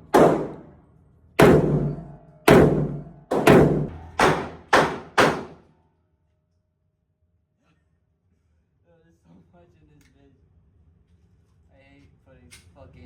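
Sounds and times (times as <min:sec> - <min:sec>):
gunshots: 0:00.0 - 0:00.7, 0:01.4 - 0:05.6.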